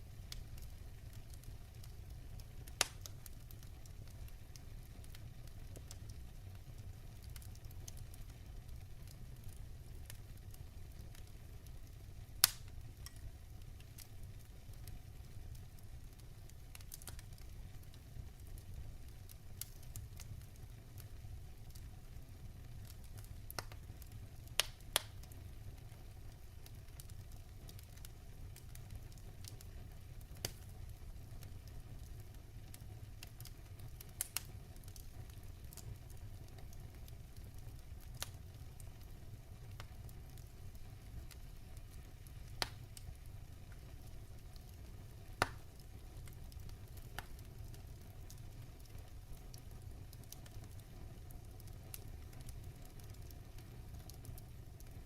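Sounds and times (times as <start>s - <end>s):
burning logs crackling and popping: 0.0s - 55.0s
low rumble of flames: 0.0s - 55.0s.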